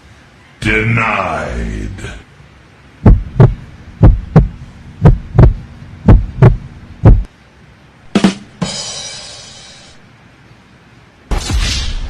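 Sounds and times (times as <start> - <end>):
deep drum-like thumps: 3.0 - 7.3.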